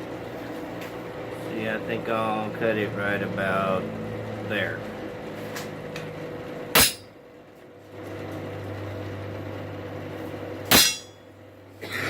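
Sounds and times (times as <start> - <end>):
steady low hum: 0.0 - 12.0
hammer striking chisel on steel: 6.8 - 7.1, 10.7 - 11.2.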